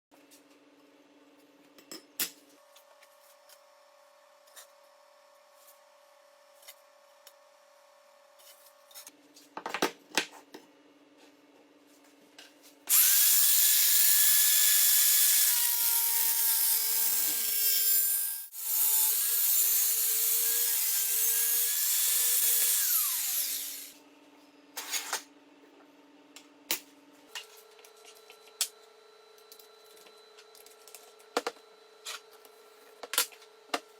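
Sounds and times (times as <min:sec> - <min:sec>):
electric power tool running: 0:12.9 - 0:24.0.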